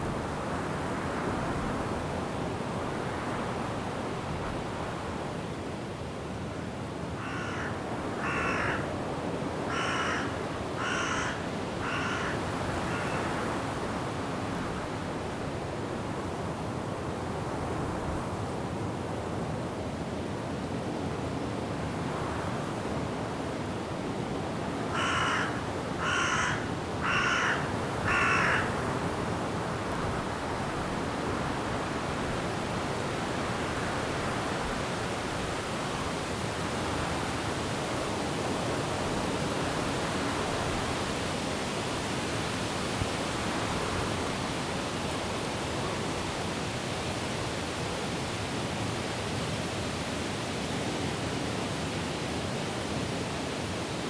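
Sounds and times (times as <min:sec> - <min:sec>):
wind and rain in trees: 0:00.0 - 0:54.0
bird harsh calls: 0:25.0 - 0:28.7.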